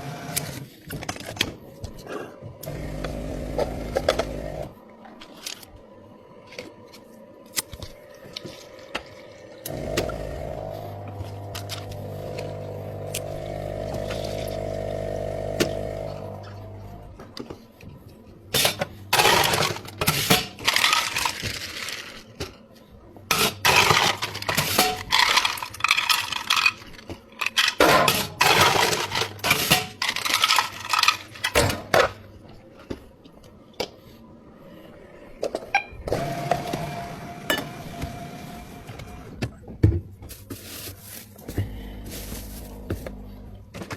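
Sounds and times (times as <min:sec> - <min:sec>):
steady machine hum: 0:02.6 - 0:04.8, 0:09.7 - 0:17.4
ice cubes rattling in container: 0:19.2 - 0:22.2, 0:23.3 - 0:27.8, 0:28.4 - 0:31.5.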